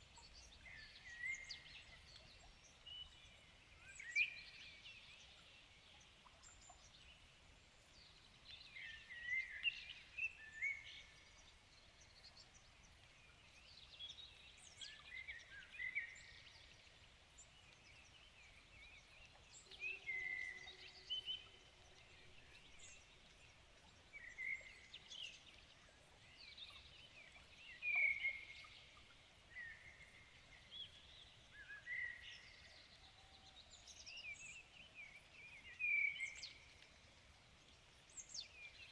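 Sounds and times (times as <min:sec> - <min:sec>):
faint background hiss: 0:00.0 - 0:38.9
songbirds singing: 0:08.1 - 0:38.9.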